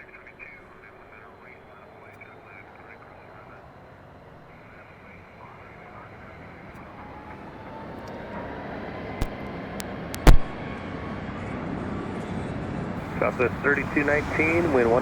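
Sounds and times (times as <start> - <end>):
jet engine with faint whine: 0.0 - 15.0
sharp clicks: 9.2 - 10.6.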